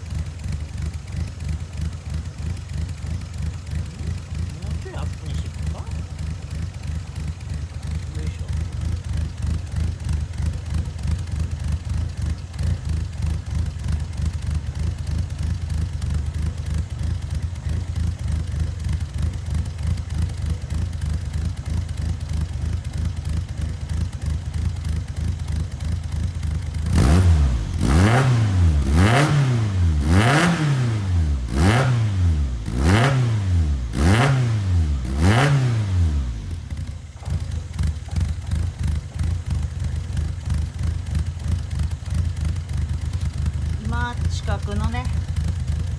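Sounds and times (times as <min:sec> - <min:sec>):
car engine idling and revving: 0:00.0 - 0:45.9.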